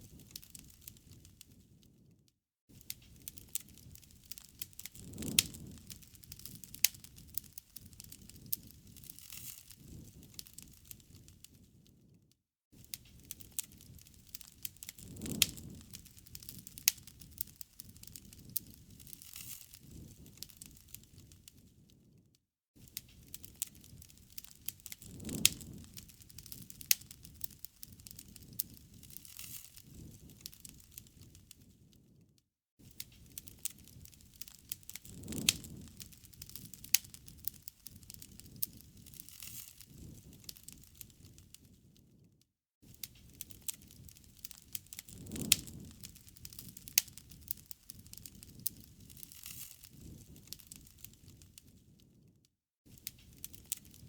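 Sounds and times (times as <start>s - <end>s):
campfire crackling and popping: 0.0s - 2.0s, 2.7s - 12.1s, 12.8s - 22.1s, 22.8s - 32.2s, 32.8s - 42.2s, 42.8s - 52.2s, 52.9s - 54.0s.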